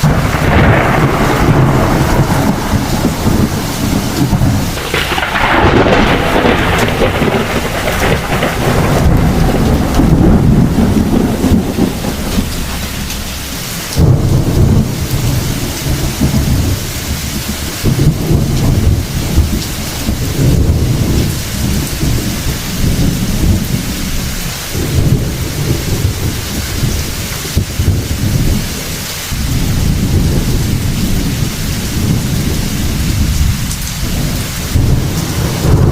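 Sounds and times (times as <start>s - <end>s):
heavy rain falling: 0.0s - 35.9s
thunder crack: 0.0s - 35.9s
thunder rumbling: 0.0s - 35.9s.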